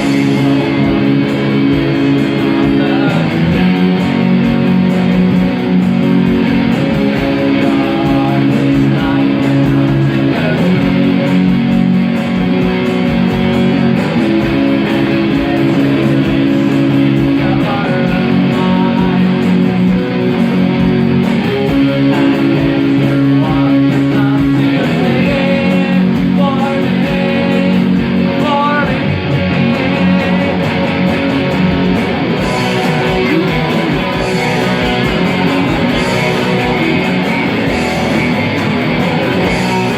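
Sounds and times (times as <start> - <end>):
guitar chords: 0.0 - 39.9
melodic guitar line: 0.0 - 39.9.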